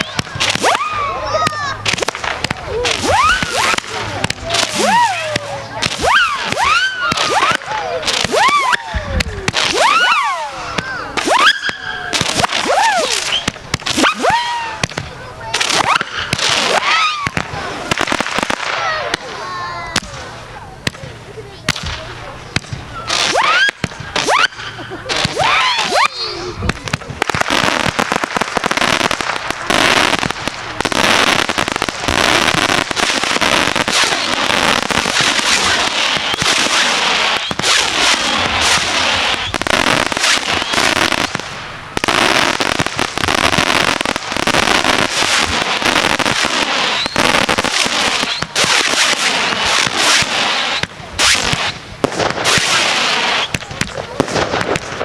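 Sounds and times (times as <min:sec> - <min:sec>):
fireworks crackling and banging: 0:00.0 - 0:55.0.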